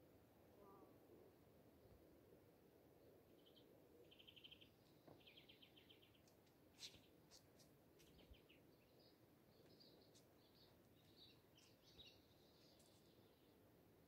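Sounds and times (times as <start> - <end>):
faint birdsong trills: 2.9 - 7.4, 8.0 - 14.0.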